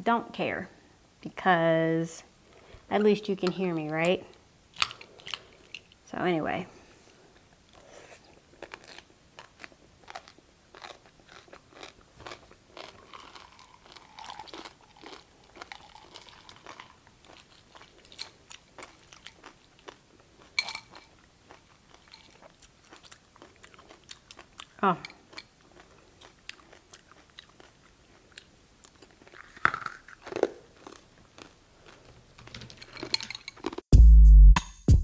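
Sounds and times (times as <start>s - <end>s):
chewing crunchy cucumber: 7.8s - 32.1s.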